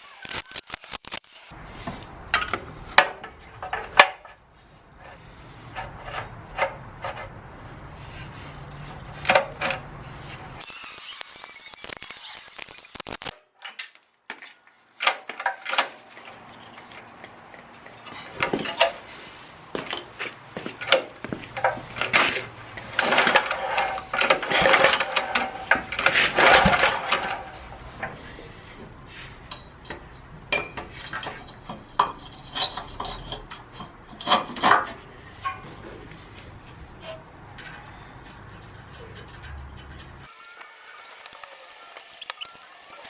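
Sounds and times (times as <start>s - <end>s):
quick metallic clicks: 0.0s - 1.5s, 10.6s - 13.4s.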